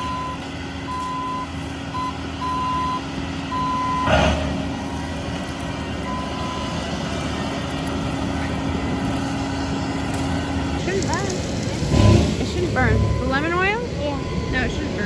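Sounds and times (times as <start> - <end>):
diesel engine running: 0.0 - 15.0
backup alarm beeping: 1.0 - 4.1, 12.0 - 15.0.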